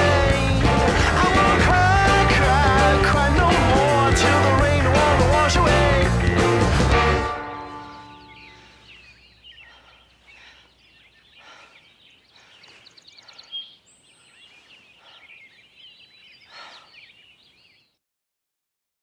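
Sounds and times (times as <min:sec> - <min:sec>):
small birds chirping: 0:07.6 - 0:18.0.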